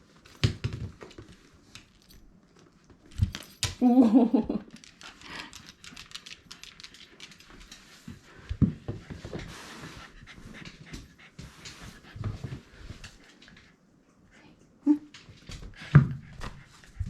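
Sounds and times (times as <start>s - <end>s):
dog panting: 5.0s - 17.0s.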